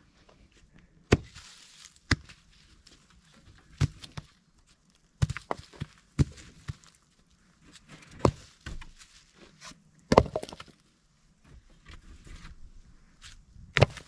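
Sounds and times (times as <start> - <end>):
sharp knocks and thuds: 10.1 - 10.7.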